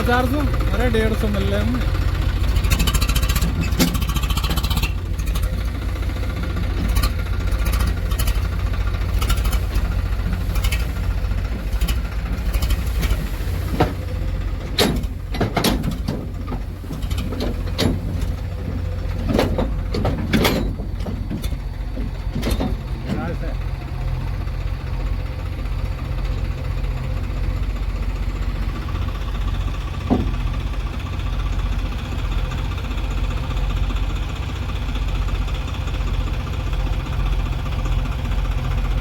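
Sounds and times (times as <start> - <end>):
heavy diesel engine rumbling: 0.0 - 39.0
sharp knocks and clatters: 6.8 - 23.4, 30.0 - 30.7.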